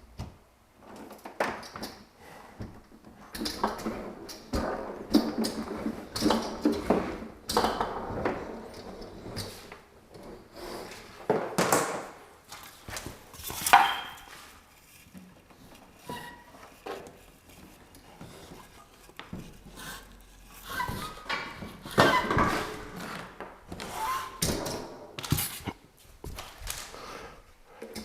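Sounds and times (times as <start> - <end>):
objects knocking and clattering: 11.2 - 12.2.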